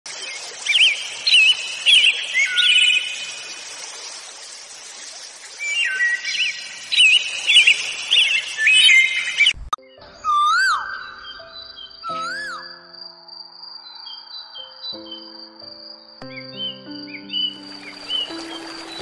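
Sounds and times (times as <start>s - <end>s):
birds whistling song: 0.3s - 3.5s, 5.6s - 12.8s, 16.2s - 19.0s.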